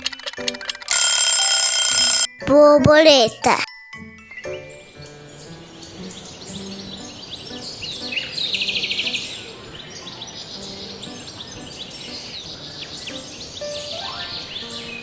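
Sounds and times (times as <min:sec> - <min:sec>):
soft music: 0:00.0 - 0:15.0
birds chirping and calling: 0:04.3 - 0:15.0
loud bird trill: 0:04.3 - 0:15.0
outdoor hiss: 0:04.4 - 0:15.0.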